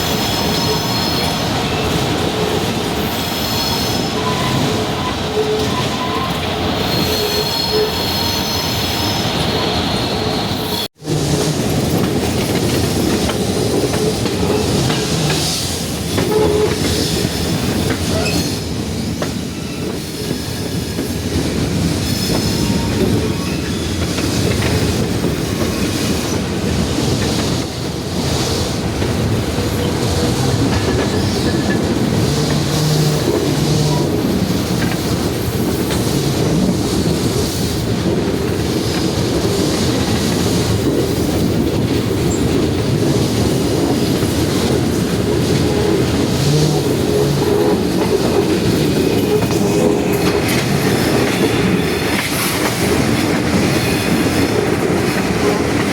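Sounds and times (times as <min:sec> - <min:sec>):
train wheels rumbling on rail: 0:00.0 - 0:55.9
high wheel squeal: 0:03.0 - 0:10.9.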